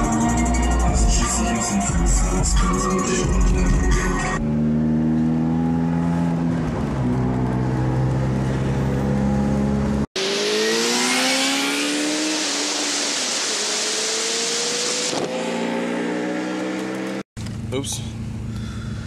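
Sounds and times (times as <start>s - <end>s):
music: 0.0s - 4.4s
car engine accelerating hard: 0.0s - 18.7s.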